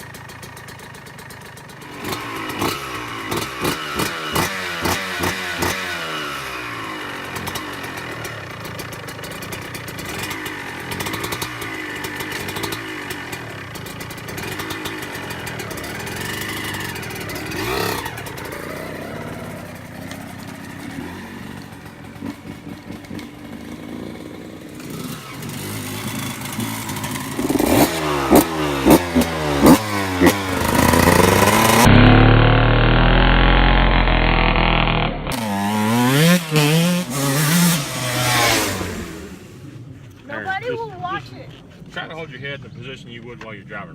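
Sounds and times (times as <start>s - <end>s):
dirt bike engine revving: 0.0s - 39.9s
quick loud throttle blips: 24.8s - 39.6s.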